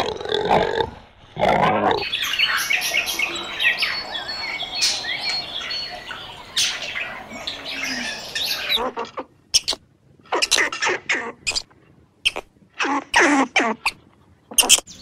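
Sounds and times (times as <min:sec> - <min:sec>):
birds chirping and whistling: 0:02.0 - 0:08.8.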